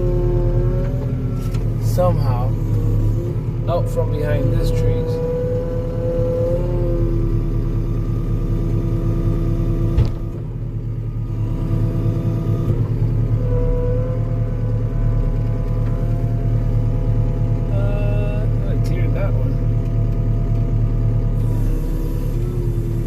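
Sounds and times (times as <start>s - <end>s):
diesel engine under load: 0.0s - 23.0s
hydraulic whine: 0.0s - 23.0s.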